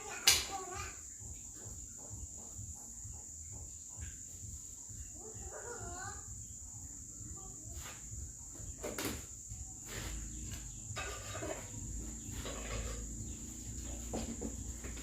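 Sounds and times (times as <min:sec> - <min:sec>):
insects trilling: 0:00.0 - 0:15.0
knocks and clatter: 0:10.5 - 0:15.0.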